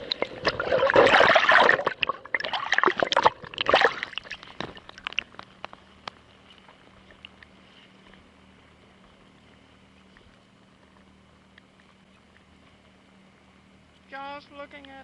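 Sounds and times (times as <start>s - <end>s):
water splashing around kayak: 0.0s - 5.7s.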